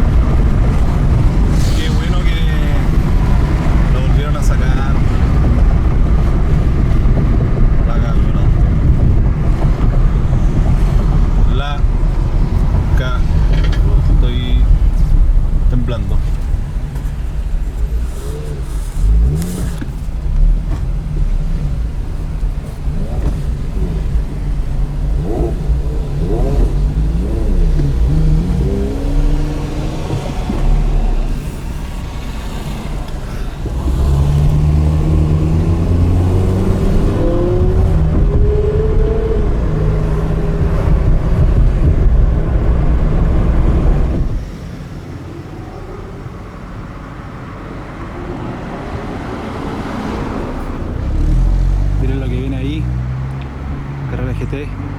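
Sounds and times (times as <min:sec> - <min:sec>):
sports car engine revving: 0:00.0 - 0:47.6, 0:48.4 - 0:54.9.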